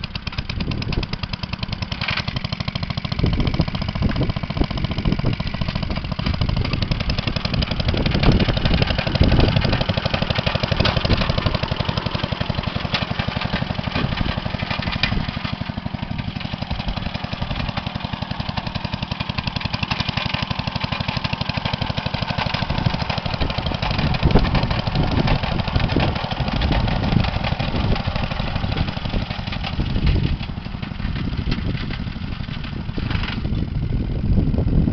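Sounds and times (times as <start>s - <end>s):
single-cylinder engine running: 0.0s - 34.9s.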